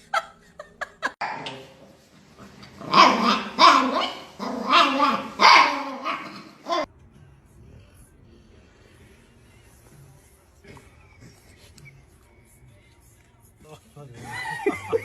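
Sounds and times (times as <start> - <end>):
dog barking: 2.8 - 6.9.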